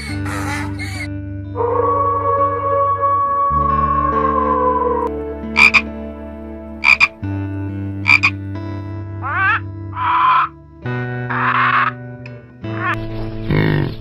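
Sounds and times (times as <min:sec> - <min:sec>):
macaw squawking: 0:00.0 - 0:01.1, 0:05.6 - 0:05.8, 0:06.8 - 0:07.2, 0:08.0 - 0:08.4, 0:09.2 - 0:10.5, 0:11.3 - 0:12.0
wolf howling: 0:01.6 - 0:05.1
toad croaking: 0:05.6 - 0:05.9, 0:06.8 - 0:07.2, 0:08.0 - 0:08.4, 0:09.2 - 0:10.6, 0:11.3 - 0:12.0.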